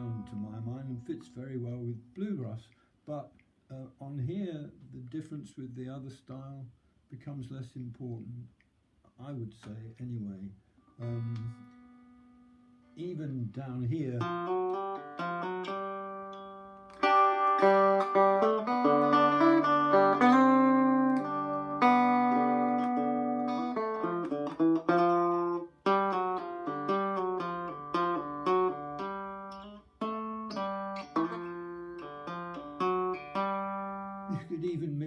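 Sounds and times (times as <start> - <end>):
banjo picking: 0.0 - 2.4, 11.0 - 12.4, 13.0 - 35.0.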